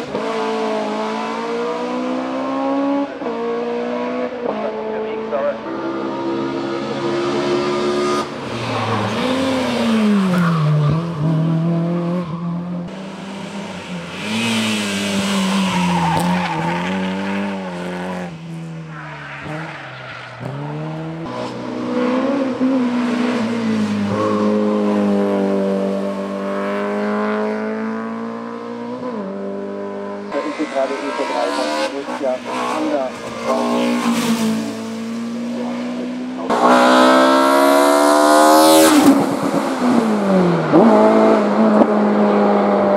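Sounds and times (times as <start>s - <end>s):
race car engine revving: 0.0s - 42.9s.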